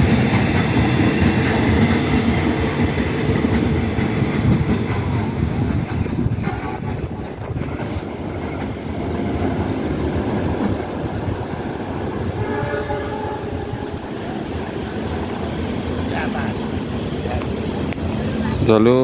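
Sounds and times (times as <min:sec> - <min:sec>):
electric train rumbling: 0:00.0 - 0:19.0
train horn: 0:12.3 - 0:14.3.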